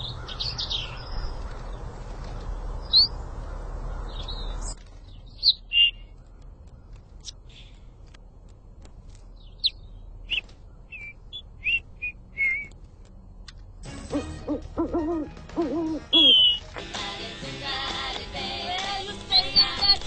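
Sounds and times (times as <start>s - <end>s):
songbird chirping: 0.0s - 8.5s, 9.1s - 16.8s, 18.2s - 20.0s
music: 13.8s - 20.0s
pigeon cooing: 14.1s - 16.6s.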